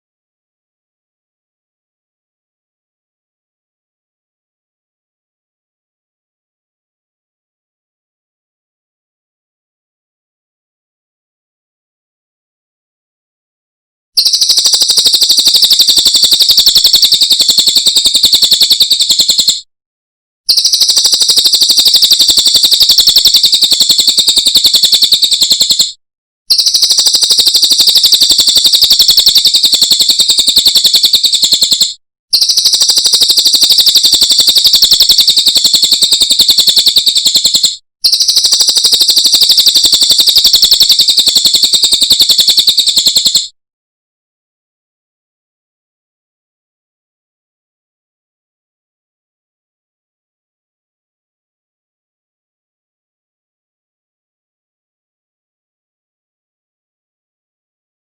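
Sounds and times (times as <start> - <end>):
bird trilling: 26.5 - 43.4.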